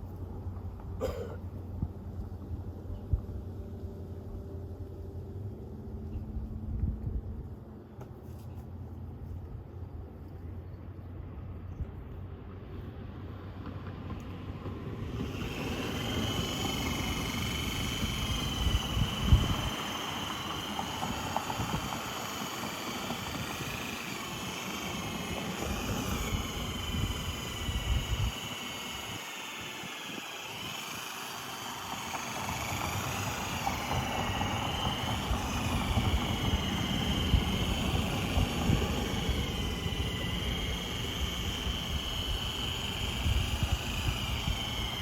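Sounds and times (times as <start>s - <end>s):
power tool motor whining: 14.6s - 45.0s.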